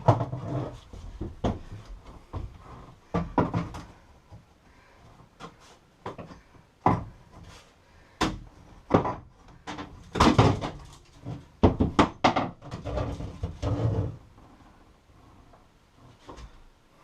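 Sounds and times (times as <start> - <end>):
wooden knocks and thuds: 0.0 - 4.4, 5.4 - 7.5, 8.2 - 14.2.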